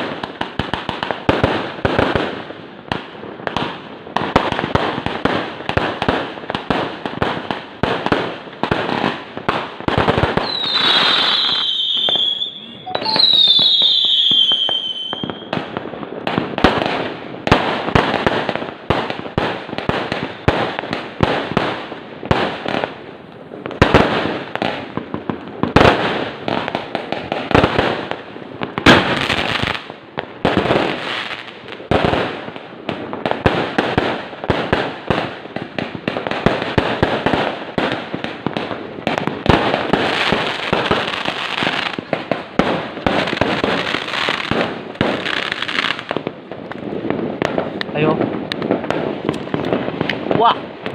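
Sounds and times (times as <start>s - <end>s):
firecrackers popping: 0.0s - 50.9s
falling whistle: 10.5s - 15.5s.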